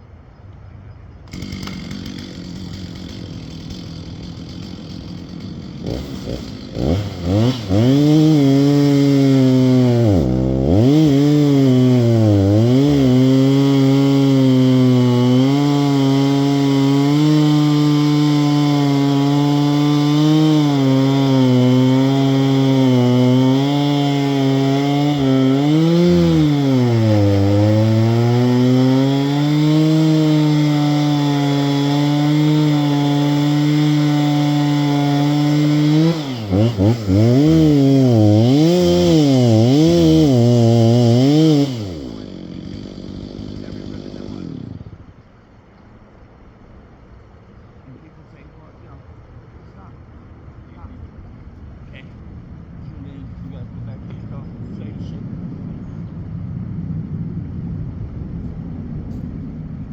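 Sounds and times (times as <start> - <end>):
chainsaw revving: 1.2 - 45.2.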